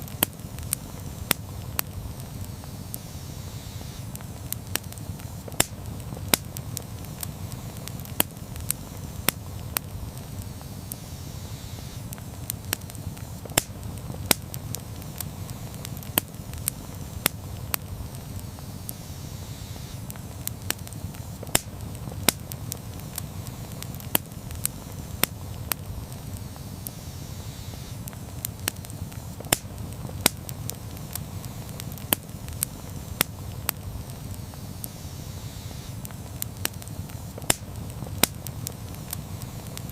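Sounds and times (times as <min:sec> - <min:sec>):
steady low rumble: 0:00.0 - 0:03.4, 0:04.1 - 0:11.2, 0:12.1 - 0:26.6
burning wood crackling and popping: 0:00.0 - 0:39.9.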